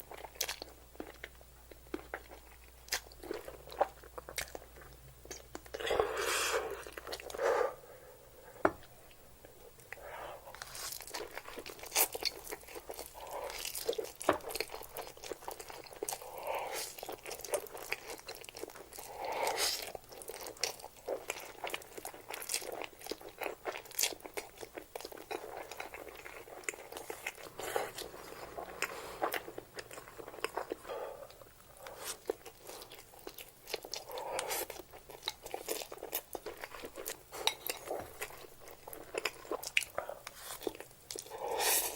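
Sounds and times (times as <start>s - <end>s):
person chewing noodles: 0.0s - 7.4s, 9.8s - 41.9s.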